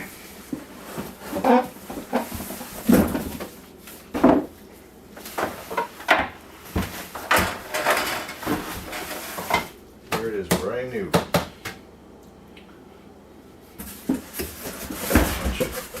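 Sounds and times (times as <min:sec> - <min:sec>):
cardboard box knocks and scrapes: 0:13.8 - 0:16.0.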